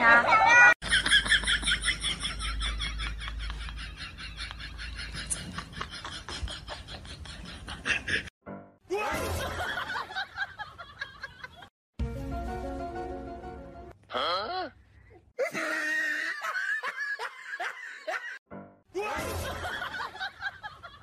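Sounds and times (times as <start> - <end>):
background music: 8.5 - 10.3, 12.0 - 14.0, 18.5 - 20.4.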